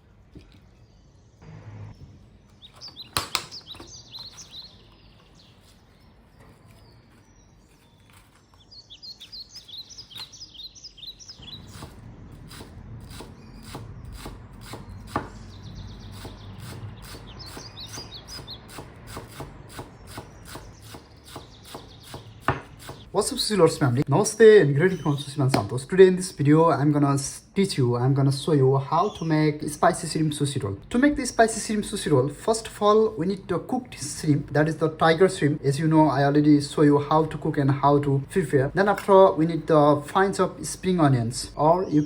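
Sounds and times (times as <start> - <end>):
small birds chirping: 0.0 - 42.0
knife chopping on cutting board: 11.7 - 15.5, 16.1 - 23.0.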